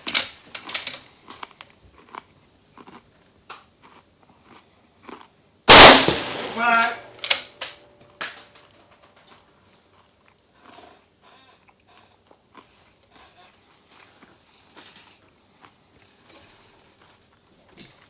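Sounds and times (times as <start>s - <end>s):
rifle bolt clicks and rustles: 0.0s - 1.5s, 5.7s - 8.4s.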